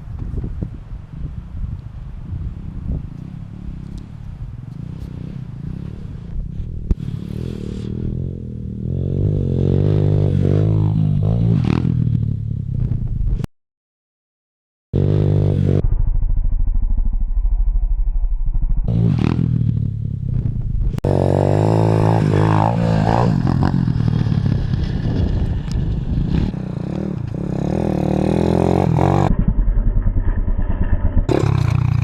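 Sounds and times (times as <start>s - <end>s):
pit bike engine revving: 4.7s - 12.3s, 18.6s - 32.0s.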